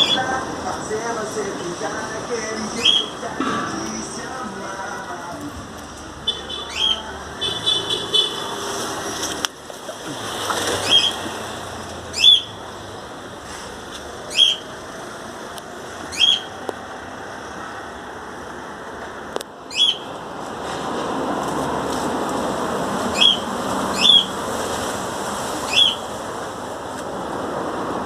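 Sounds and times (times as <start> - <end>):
bird calling: 0.0 - 0.4, 2.6 - 3.5, 6.2 - 8.4, 10.0 - 11.4, 12.1 - 12.6, 14.3 - 14.7, 16.1 - 16.6, 19.7 - 20.1, 23.1 - 24.4, 25.6 - 26.1.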